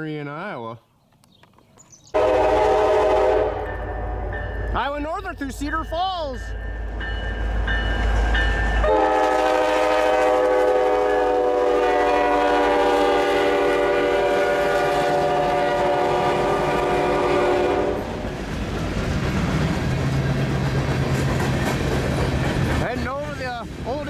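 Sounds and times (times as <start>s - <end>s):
locomotive air horn blast: 2.2s - 4.3s, 8.8s - 18.1s
train cars rumbling and clattering: 2.4s - 24.0s.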